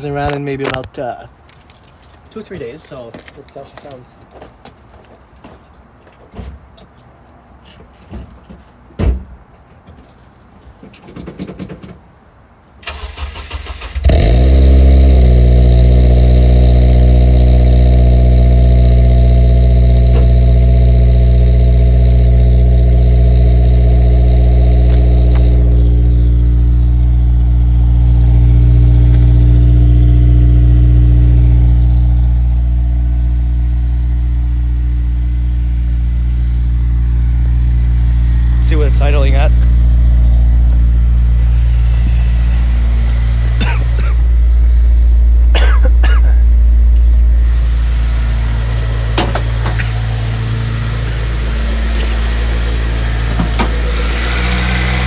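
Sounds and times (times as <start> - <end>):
starter motor cranking: 12.9 - 45.0
car engine fast idling: 12.9 - 55.0.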